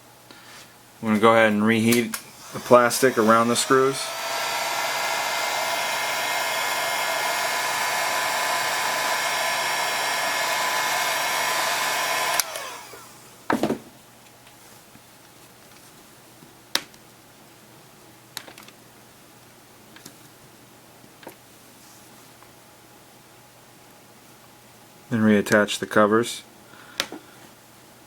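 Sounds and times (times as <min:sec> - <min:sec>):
hot-air blower whining hum: 0:01.9 - 0:13.5.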